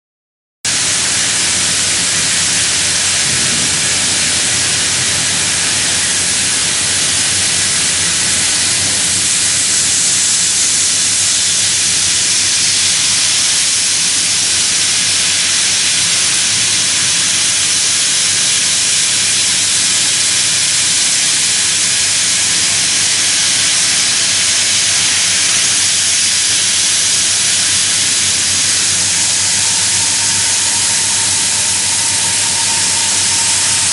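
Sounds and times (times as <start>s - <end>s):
milling machine cutting hiss: 0.7s - 33.9s.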